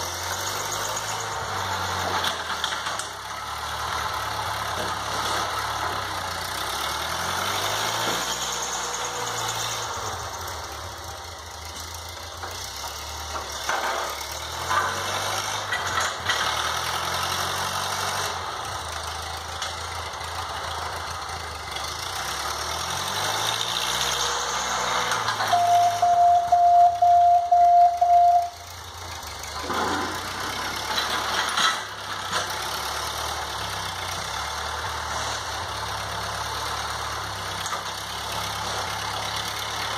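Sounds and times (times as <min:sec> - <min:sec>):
tractor engine running: 0:00.0 - 0:39.9
loud pulsing beep: 0:25.5 - 0:28.6.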